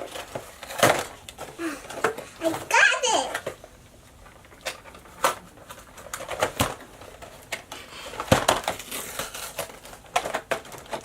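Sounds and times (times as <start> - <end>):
toy packaging being opened: 4.3 - 11.0.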